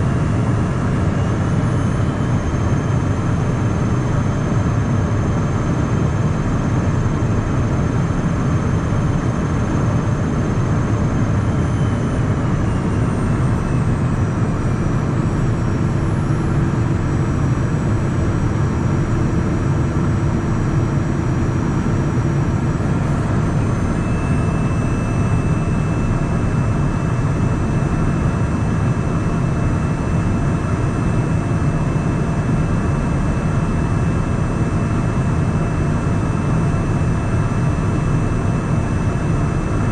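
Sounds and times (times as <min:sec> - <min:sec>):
faint high whines: 0:00.0 - 0:17.1, 0:22.6 - 0:28.3
jet cabin engine hum: 0:00.0 - 0:39.9.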